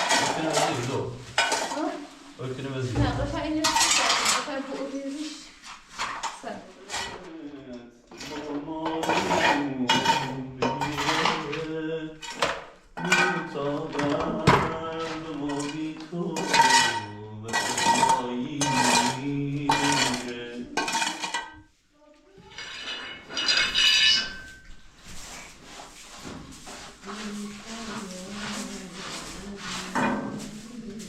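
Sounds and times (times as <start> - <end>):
pots and dishes clattering: 0.0 - 2.0, 3.0 - 4.6, 5.9 - 7.3, 8.1 - 14.8, 15.4 - 21.7, 22.5 - 24.8, 29.9 - 30.6.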